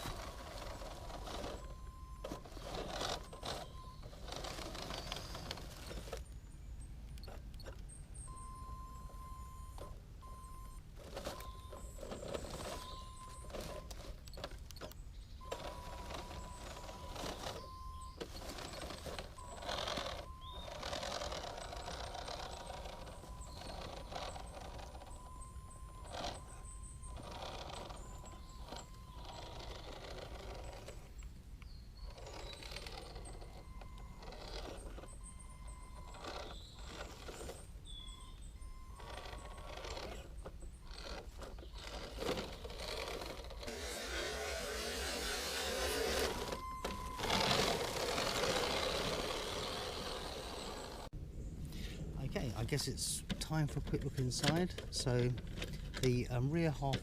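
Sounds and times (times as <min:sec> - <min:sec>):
tyres rough noise: 0:00.0 - 0:06.3, 0:11.0 - 0:31.4, 0:32.0 - 0:57.0
toy truck electric motor whine: 0:00.0 - 0:51.1
bird chirps: 0:11.4 - 0:13.5, 0:14.9 - 0:30.0, 0:31.1 - 0:34.2, 0:34.8 - 0:42.9.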